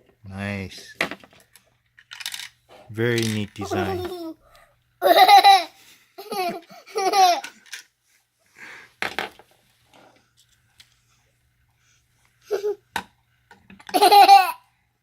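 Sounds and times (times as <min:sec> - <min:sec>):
young child laughing: 0:03.6 - 0:04.4, 0:05.0 - 0:07.5, 0:12.4 - 0:12.8, 0:13.9 - 0:14.6.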